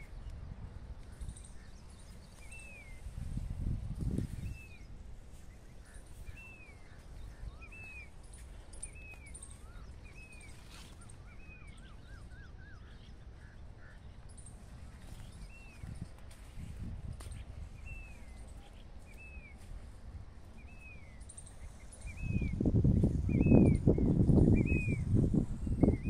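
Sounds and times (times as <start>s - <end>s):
low wind rumble: 0.0s - 26.0s
faint high chirps: 4.2s - 13.4s, 20.4s - 26.0s.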